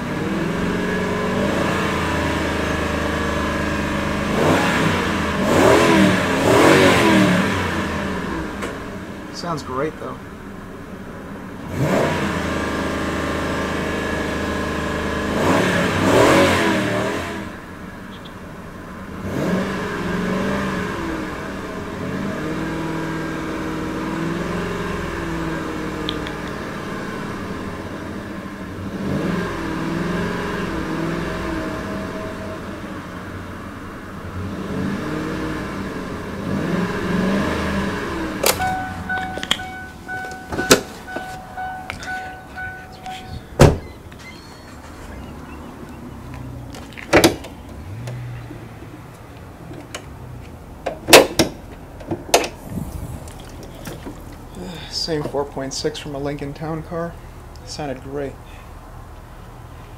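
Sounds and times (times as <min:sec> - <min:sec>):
car engine revving: 0:00.0 - 0:59.6
steady chime tone: 0:38.6 - 0:44.7.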